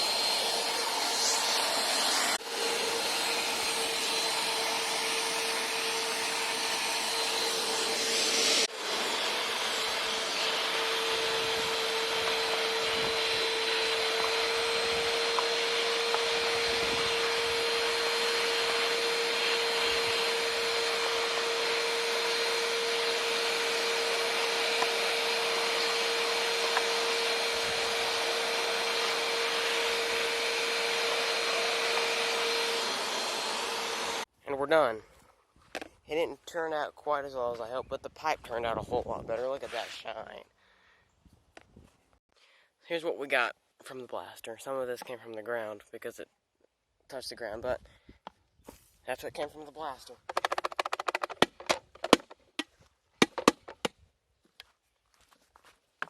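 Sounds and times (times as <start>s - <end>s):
vacuum cleaner running: 0.0s - 34.3s.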